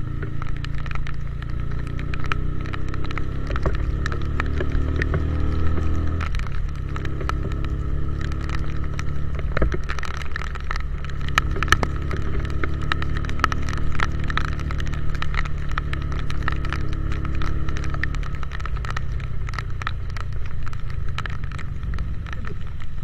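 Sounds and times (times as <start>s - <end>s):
motorcycle engine running: 0.0s - 23.0s
raindrops clicking: 0.0s - 23.0s.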